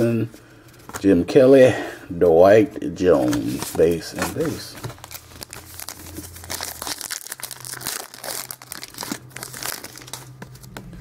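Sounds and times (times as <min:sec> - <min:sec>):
card wrappers crinkling and tearing: 0:03.1 - 0:10.9.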